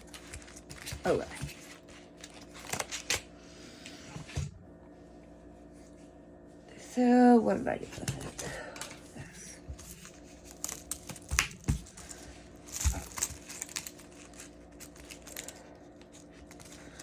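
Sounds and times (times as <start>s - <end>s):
paper rustling and crinkling: 0.0s - 3.3s, 7.9s - 17.0s.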